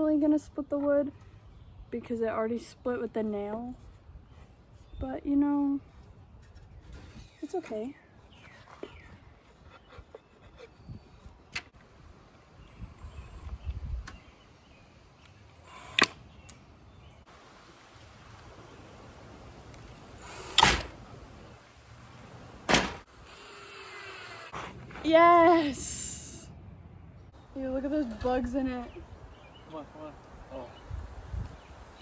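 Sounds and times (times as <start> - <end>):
screw driven into wood: 15.7 - 16.2, 20.2 - 21.0
sharp clunks: 20.4 - 21.0, 22.6 - 23.1.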